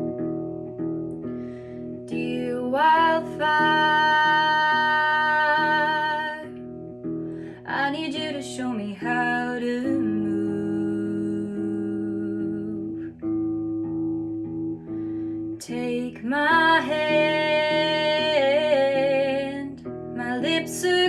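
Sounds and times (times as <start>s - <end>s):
woman singing: 2.0s - 6.7s, 7.5s - 13.3s, 15.5s - 21.0s.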